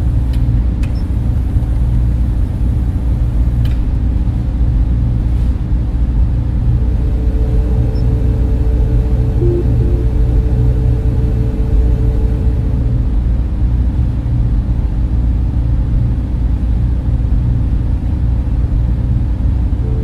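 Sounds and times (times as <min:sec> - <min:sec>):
cooling fans droning: 0:00.0 - 0:20.0
deep hum: 0:05.9 - 0:14.8, 0:19.6 - 0:20.0
steady tones: 0:06.6 - 0:13.3, 0:19.8 - 0:20.0.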